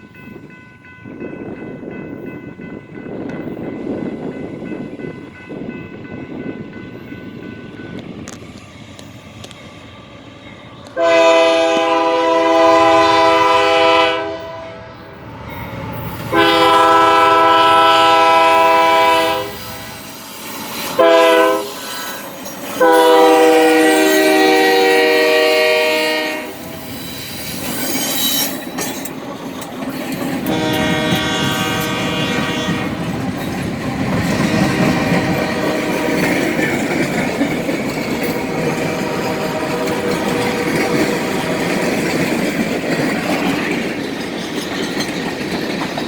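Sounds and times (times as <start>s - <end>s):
freight train rumbling: 0.0s - 46.0s
locomotive horn blasts: 10.9s - 15.1s, 16.3s - 20.0s, 21.0s - 21.8s, 22.8s - 26.6s, 30.5s - 33.0s, 34.6s - 36.2s, 38.5s - 41.5s.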